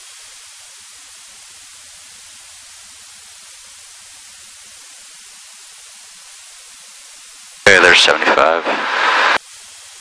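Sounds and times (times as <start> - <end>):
cockpit intercom hiss: 7.6 - 9.4.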